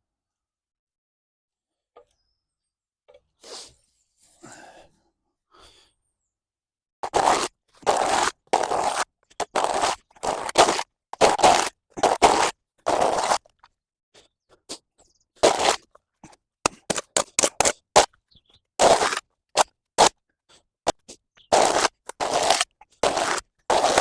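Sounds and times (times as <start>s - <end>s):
spade scraping through mud: 7.0s - 13.4s, 18.8s - 20.1s, 20.9s - 24.0s.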